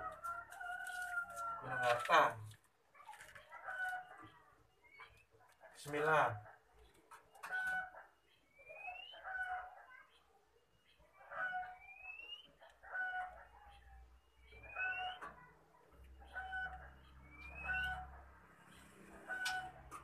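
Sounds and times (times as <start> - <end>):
birds calling with rising whistle: 14.4 - 15.2.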